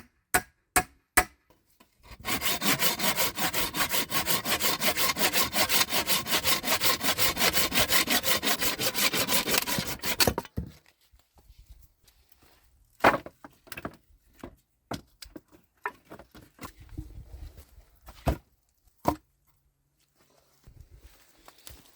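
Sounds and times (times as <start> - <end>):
hand saw cutting wood: 2.0 - 10.5.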